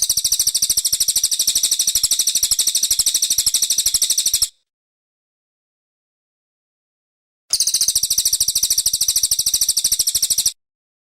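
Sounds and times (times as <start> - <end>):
songbird high-pitched trill: 0.0 - 4.5, 7.5 - 10.6.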